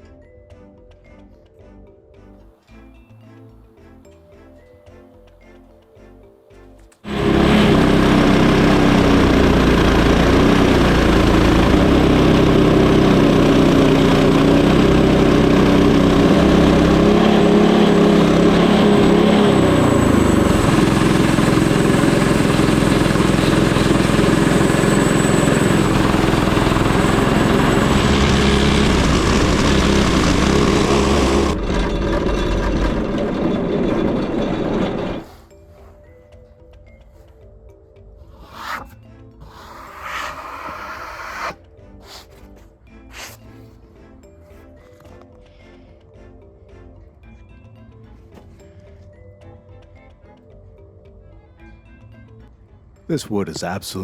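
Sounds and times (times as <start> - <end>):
bandsaw mill cutting log: 7.0 - 35.4, 38.2 - 42.5, 43.1 - 43.4.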